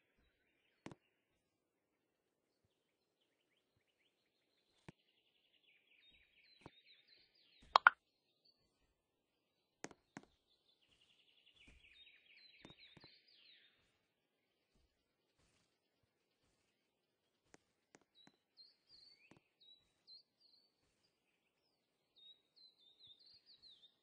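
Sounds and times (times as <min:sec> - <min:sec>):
small bird twittering: 0:05.7 - 0:08.0, 0:10.4 - 0:13.9, 0:18.1 - 0:24.0
sharp clicks or knocks: 0:07.8 - 0:08.0.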